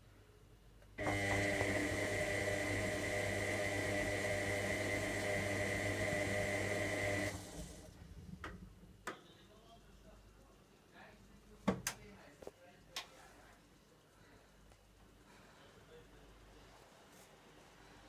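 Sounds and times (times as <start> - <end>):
washing machine motor humming: 1.0 - 8.8.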